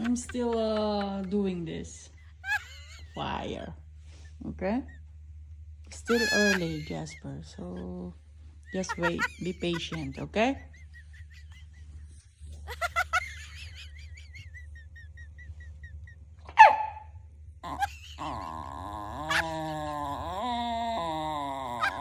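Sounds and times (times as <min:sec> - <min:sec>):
dog moaning: 0:15.1 - 0:22.0
dog whining: 0:16.4 - 0:22.0
dog barking: 0:16.5 - 0:17.1.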